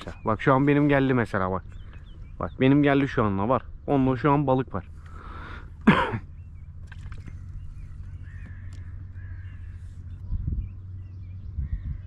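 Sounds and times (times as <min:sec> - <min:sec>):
faint distant bird calls: 0:00.0 - 0:12.0
low steady hum: 0:00.0 - 0:12.0.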